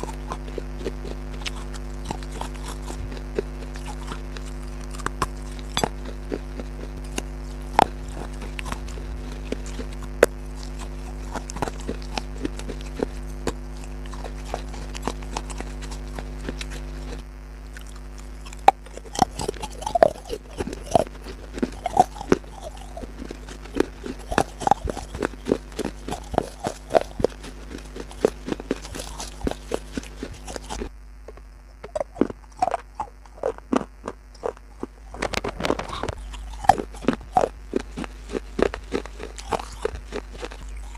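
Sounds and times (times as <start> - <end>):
crunchy food chewing: 0.0 - 40.9
steady low hum: 0.0 - 40.9.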